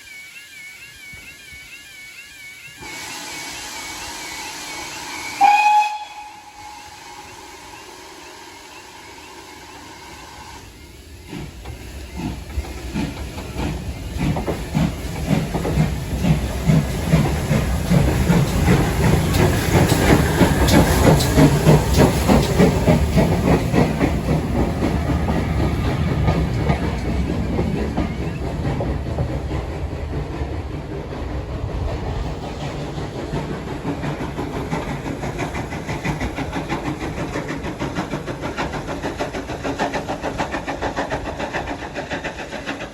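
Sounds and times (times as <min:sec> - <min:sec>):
steam locomotive running past: 0:00.0 - 0:42.9
wheels clicking over rail joints: 0:11.3 - 0:42.9.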